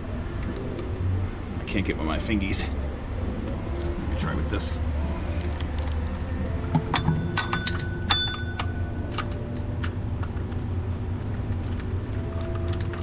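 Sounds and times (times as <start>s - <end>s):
steady low hum: 0.0s - 13.0s
metal tool clinking on bolts: 6.8s - 9.2s.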